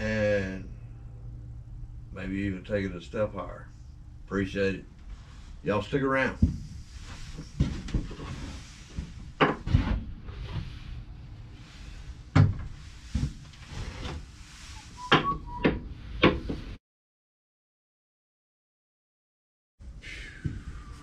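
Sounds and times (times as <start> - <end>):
knocks and clunks: 7.5 - 10.8, 12.3 - 14.2, 15.0 - 16.8.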